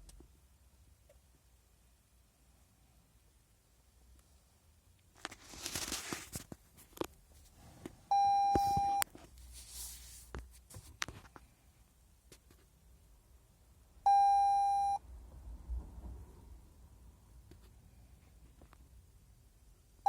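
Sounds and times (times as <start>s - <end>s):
rustling: 5.1s - 11.5s
car warning chime beep: 8.1s - 9.0s, 14.1s - 15.0s.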